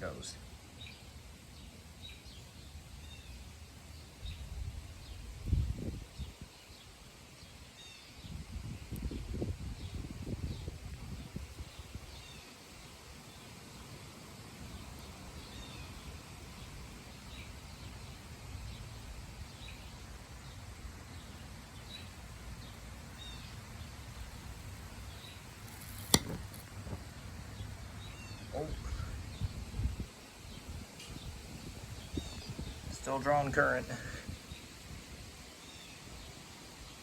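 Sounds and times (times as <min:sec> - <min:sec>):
birds chirping: 0:14.7 - 0:34.8
sharp snap: 0:25.7 - 0:26.7.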